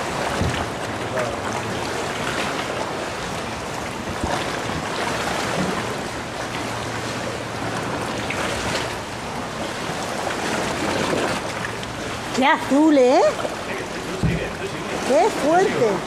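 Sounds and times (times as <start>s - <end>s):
water sloshing around kayak: 0.0s - 16.0s
faint knocks: 14.2s - 14.7s.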